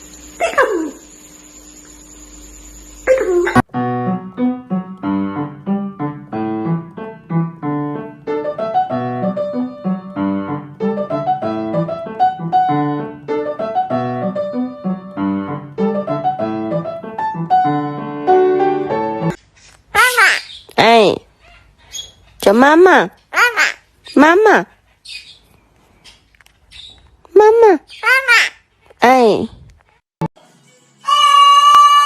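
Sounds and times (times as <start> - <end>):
piano music: 3.5 - 19.4.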